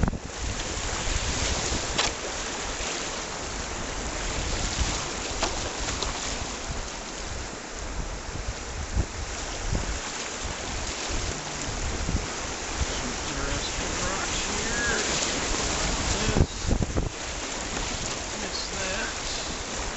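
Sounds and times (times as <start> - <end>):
sharp knocks and splashes: 0.0 - 3.3, 4.2 - 6.7
river rapid rushing water: 0.0 - 19.9
wind buffeting microphone: 0.0 - 19.9.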